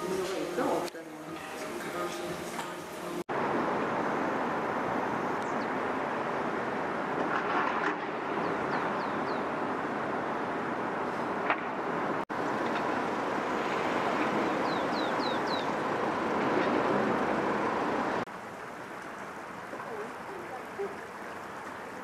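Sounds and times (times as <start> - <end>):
broad background noise: 0.0 - 10.6, 11.9 - 22.0
small bird chirping: 14.6 - 15.7.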